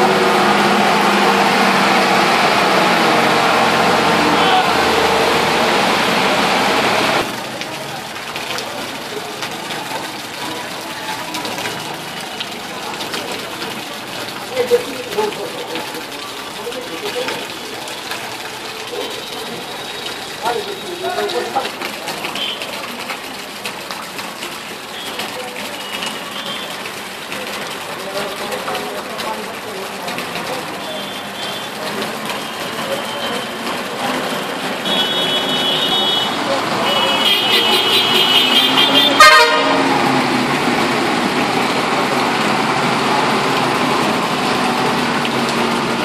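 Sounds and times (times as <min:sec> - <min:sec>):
floodwater rushing: 0:00.0 - 0:46.0
street noise: 0:00.0 - 0:46.0
vehicle horn toot: 0:34.8 - 0:39.8.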